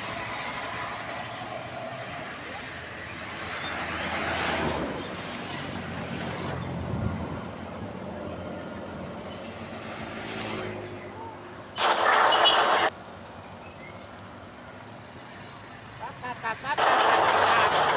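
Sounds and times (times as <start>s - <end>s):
traffic rumble: 0.0s - 17.9s
loud noisy rush: 11.8s - 12.9s, 16.8s - 17.9s.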